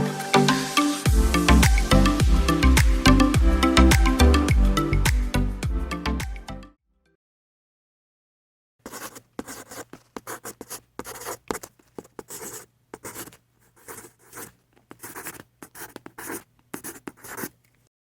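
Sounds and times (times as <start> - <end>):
scratching and rubbing strokes: 8.9 - 17.6.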